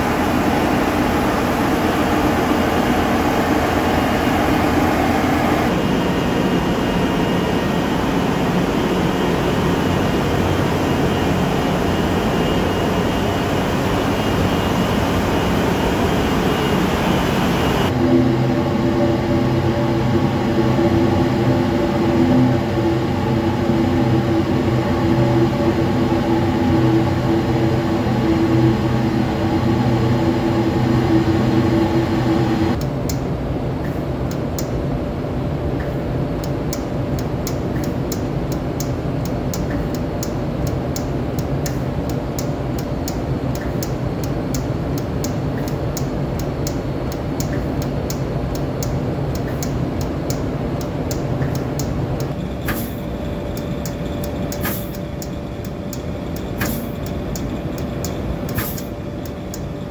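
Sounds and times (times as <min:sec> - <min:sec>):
machine humming: 0:00.0 - 0:59.9
machine ticking: 0:36.4 - 0:59.9.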